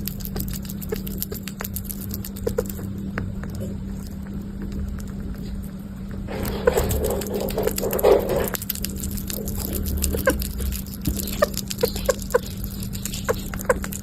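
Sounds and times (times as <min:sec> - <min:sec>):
steady low hum: 0:00.0 - 0:14.0
sugar glider squeaky yips: 0:10.1 - 0:14.0.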